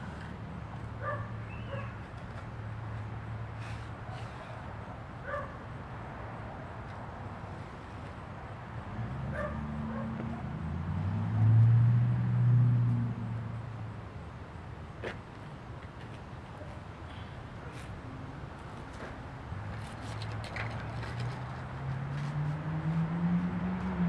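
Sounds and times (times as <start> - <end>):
dog barking: 1.0 - 2.0, 5.2 - 5.6, 9.3 - 10.5.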